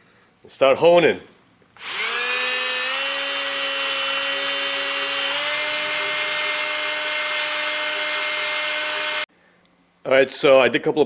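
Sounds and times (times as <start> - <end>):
electric drill honing cylinder: 1.8 - 9.3.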